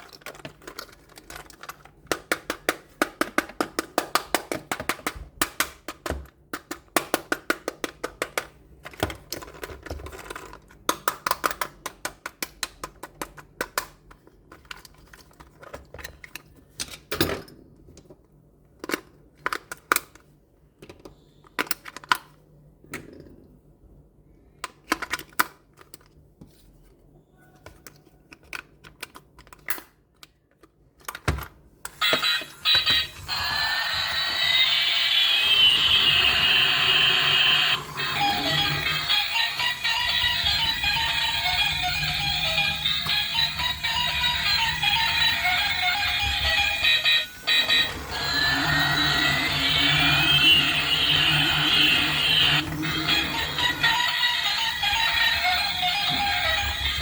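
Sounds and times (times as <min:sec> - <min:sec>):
toy parts clicking and tapping: 0:00.0 - 0:17.0, 0:27.6 - 0:33.2
whirring with high whine: 0:32.0 - 0:57.0.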